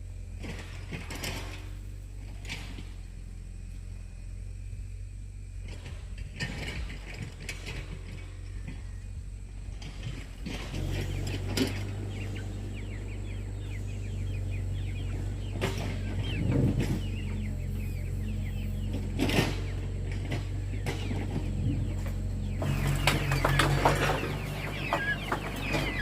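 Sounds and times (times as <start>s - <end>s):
steady low hum: 0.0s - 26.0s
chickens clucking: 5.6s - 26.0s
chicks peeping: 6.6s - 26.0s.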